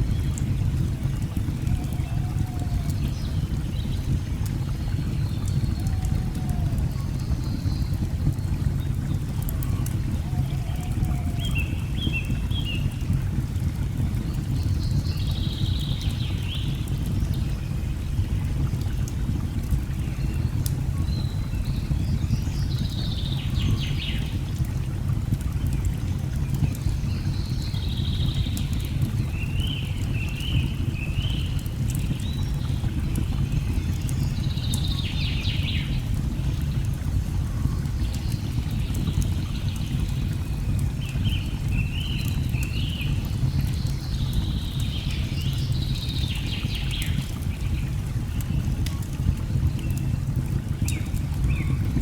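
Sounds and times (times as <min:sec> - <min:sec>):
wood fire crackles: 0:00.0 - 0:52.0.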